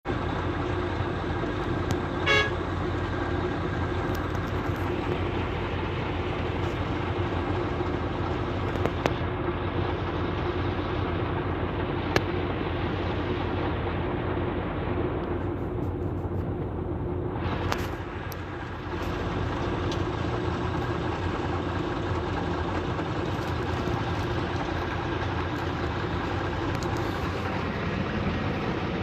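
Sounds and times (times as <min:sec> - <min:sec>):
motor vehicle running hum: 0:00.0 - 0:29.0
vehicle horn toot: 0:02.2 - 0:02.7.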